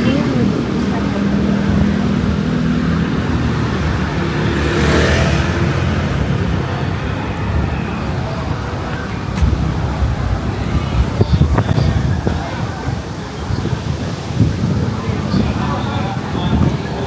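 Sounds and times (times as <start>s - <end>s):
vehicle passing by: 0.0s - 12.8s
low traffic rumble: 0.0s - 17.0s.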